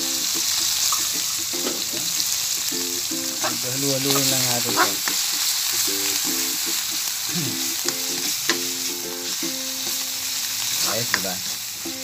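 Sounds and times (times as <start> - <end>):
meat sizzling in hot oil: 0.0 - 12.0
spatula clicking against pan: 7.8 - 8.7, 10.9 - 11.3.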